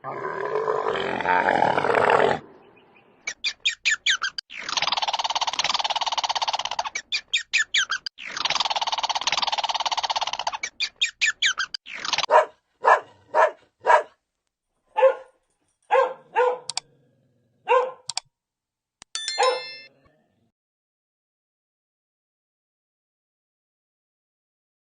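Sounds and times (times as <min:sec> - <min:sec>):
bird harsh rattling call: 0:03.3 - 0:12.4
dog barking: 0:12.3 - 0:14.2, 0:14.9 - 0:16.8, 0:17.6 - 0:18.2, 0:19.4 - 0:19.7.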